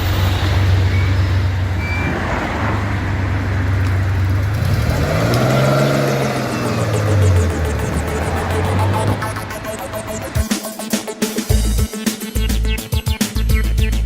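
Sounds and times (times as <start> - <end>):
car engine running: 0.0 - 11.8.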